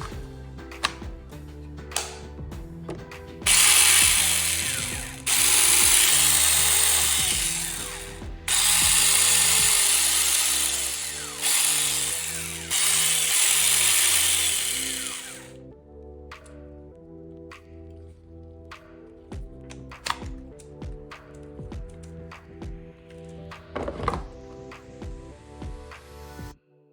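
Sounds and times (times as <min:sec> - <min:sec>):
background music: 0:00.0 - 0:26.9
electric chainsaw running: 0:03.4 - 0:15.6.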